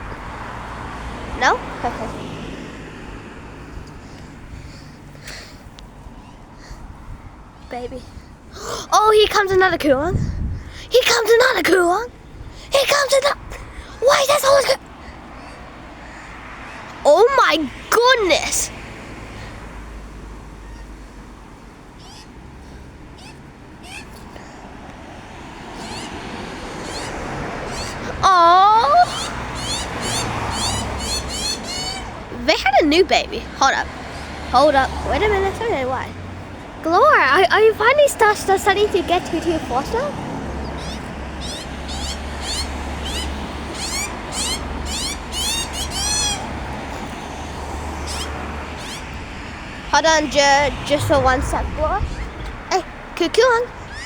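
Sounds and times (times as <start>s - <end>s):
birds calling: 0.0s - 19.7s, 20.3s - 37.4s, 38.1s - 54.0s
young bird begging calls: 22.0s - 24.2s, 25.7s - 33.8s, 40.6s - 46.6s, 48.0s - 54.0s
low background rumble: 49.9s - 54.0s.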